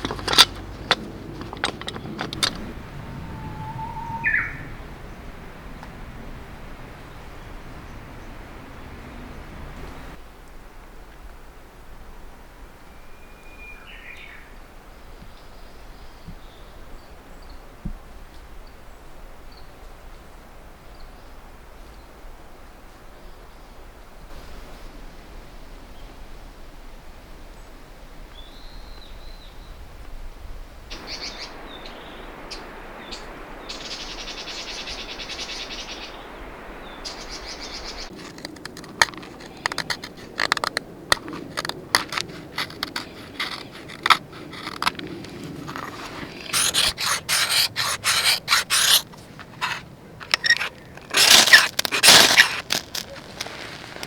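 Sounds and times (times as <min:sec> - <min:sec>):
sharp crackles and scrapes: 0:00.0 - 0:02.8, 0:38.0 - 0:54.0
trilled bird song: 0:00.0 - 0:05.2, 0:31.0 - 0:38.2
birds singing: 0:01.9 - 0:05.3, 0:31.0 - 0:38.2.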